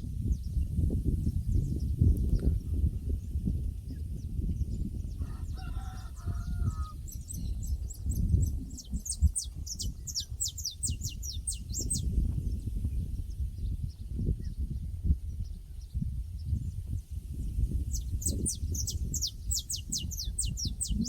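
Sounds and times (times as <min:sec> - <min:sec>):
distant rooster crowing: 0:05.2 - 0:07.1
small bird chirping: 0:06.3 - 0:14.8, 0:17.5 - 0:21.0
steady low rumble: 0:07.0 - 0:21.0.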